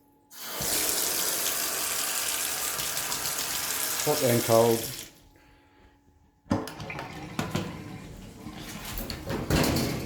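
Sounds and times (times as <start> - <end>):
water draining in a sink: 0.3 - 5.2.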